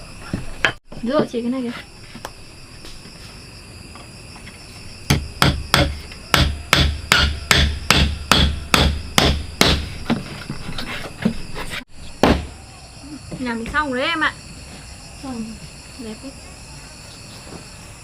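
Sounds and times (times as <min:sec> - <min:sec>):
hammer striking wood: 0:05.1 - 0:10.2, 0:12.2 - 0:12.6.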